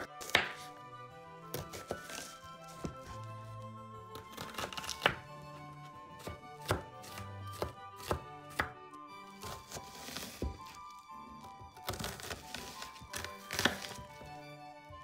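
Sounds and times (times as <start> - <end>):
knife chopping on cutting board: 0.0 - 0.7, 1.5 - 3.1, 4.2 - 5.2, 6.2 - 8.8, 9.4 - 10.8, 11.8 - 14.0.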